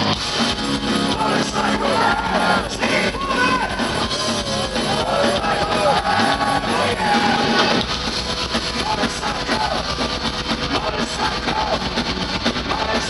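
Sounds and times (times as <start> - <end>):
heavy metal band playing live: 0.0 - 13.0.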